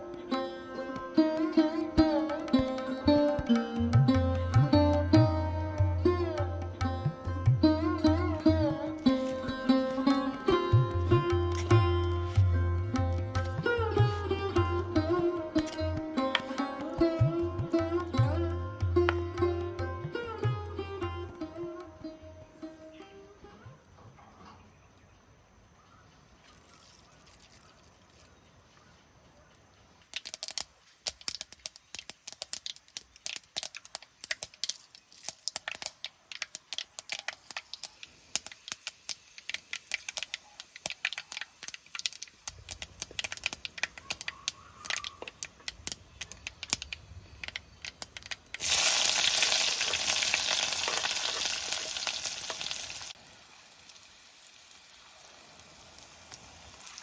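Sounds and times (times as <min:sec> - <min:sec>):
oil crackling and popping: 0:30.0 - 0:57.0
loud steady sizzle: 0:30.1 - 0:44.2, 0:45.3 - 0:57.0.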